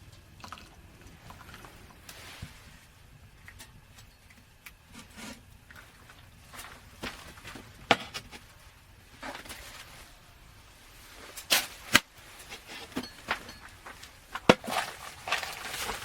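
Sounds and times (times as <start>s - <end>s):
rustling: 4.9s - 16.0s.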